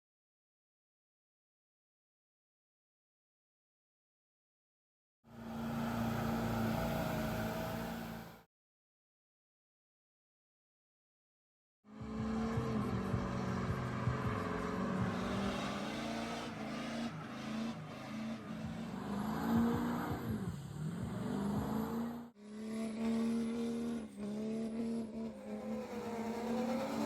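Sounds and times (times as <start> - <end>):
engine revving: 5.3 - 8.4, 11.9 - 27.0
truck engines running: 11.9 - 27.0.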